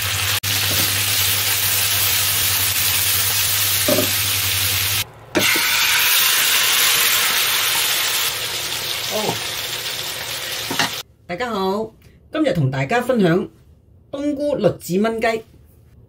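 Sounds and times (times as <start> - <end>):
food sizzling in a wok: 0.0 - 11.0.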